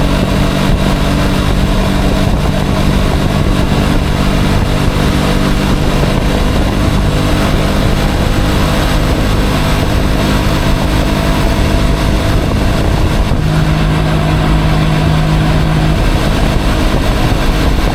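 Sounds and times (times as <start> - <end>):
low hum: 0.0 - 17.9
motorcycle engine running: 0.0 - 17.9
rush of wind noise: 0.0 - 17.9.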